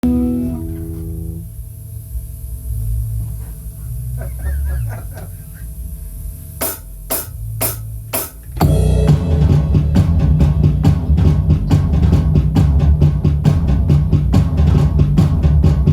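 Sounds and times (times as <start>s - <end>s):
low bass notes: 0.0s - 1.8s, 7.3s - 15.9s
drum kit rapid strokes: 6.6s - 15.9s
rock band playing loud: 8.6s - 14.9s.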